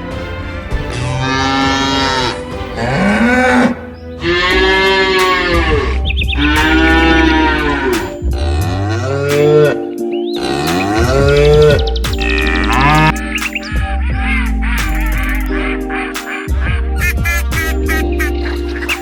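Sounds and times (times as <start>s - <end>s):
steady music: 0.0s - 19.0s
cattle mooing: 0.9s - 11.8s, 12.4s - 13.2s.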